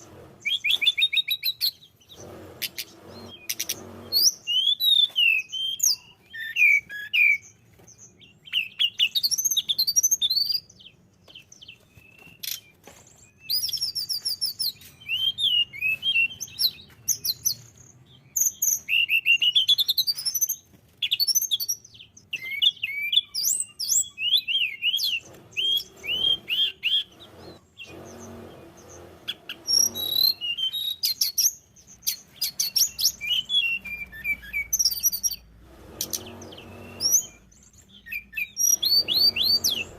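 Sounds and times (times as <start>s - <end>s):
bird singing trills and whistles: 0.4s - 39.9s.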